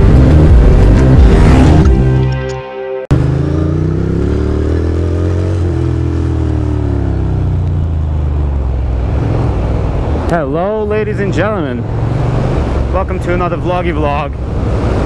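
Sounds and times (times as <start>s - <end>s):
motorcycle engine running: 0.0s - 2.1s, 3.1s - 10.1s
road and wind noise: 0.0s - 2.5s, 3.1s - 15.0s
music: 0.0s - 3.1s.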